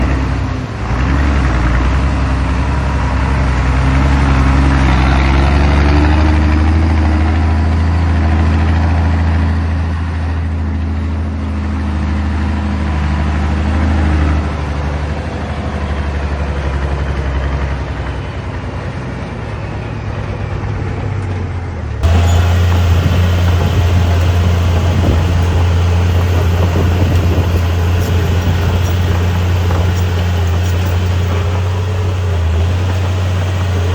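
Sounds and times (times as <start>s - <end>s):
dump truck diesel engine running: 22.0s - 33.9s.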